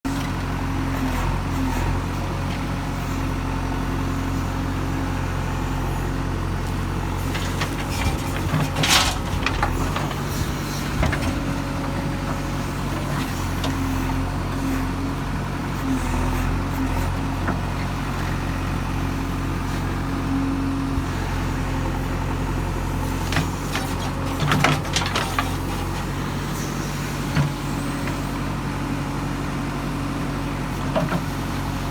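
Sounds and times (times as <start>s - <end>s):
diesel engine running under load: 0.0s - 31.9s
soil clattering and thudding into truck: 7.1s - 14.0s, 22.8s - 28.3s.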